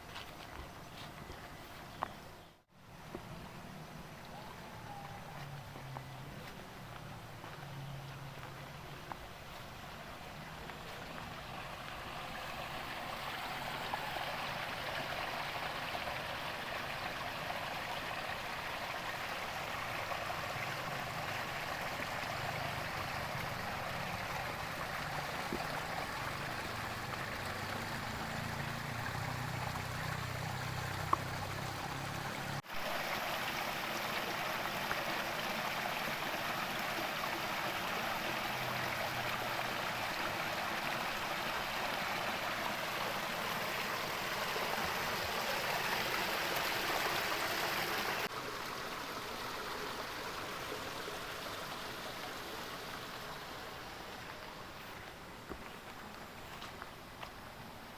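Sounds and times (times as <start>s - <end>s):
heavy rain with running water: 11.8s - 55.0s.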